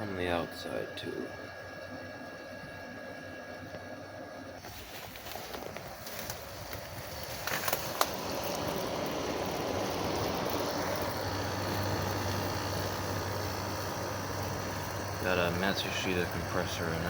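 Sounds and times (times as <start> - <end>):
air conditioner fan rush: 0.0 - 17.0
compressor hum: 0.0 - 17.0
sharp clicks: 6.2 - 8.8.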